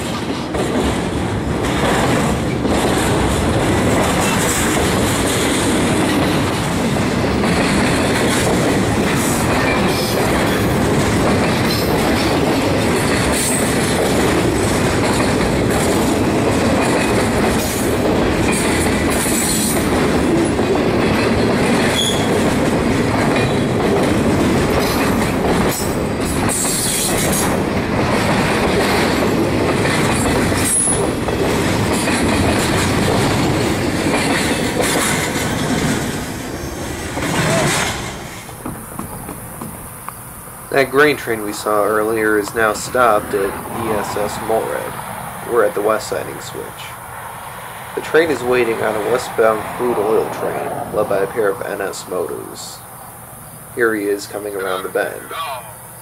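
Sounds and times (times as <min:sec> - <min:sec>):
freight train rumbling: 0:00.0 - 0:56.0
wheels clicking over track: 0:00.5 - 0:39.8
high wheel squeals: 0:21.9 - 0:22.4.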